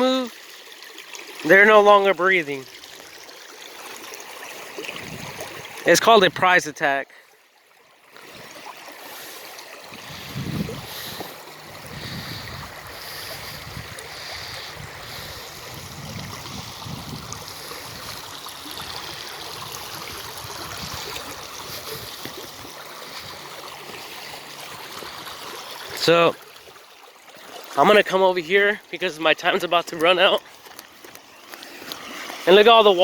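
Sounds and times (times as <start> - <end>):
creek water running over rocks: 0.0 - 33.0
wind rumble on microphone: 4.9 - 5.7, 10.0 - 19.0, 19.6 - 22.3.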